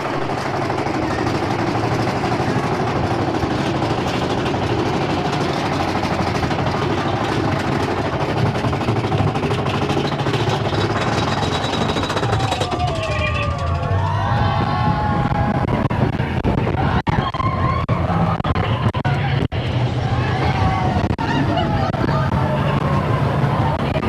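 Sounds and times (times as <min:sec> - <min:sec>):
roller coaster rattling on track: 0:00.0 - 0:24.0.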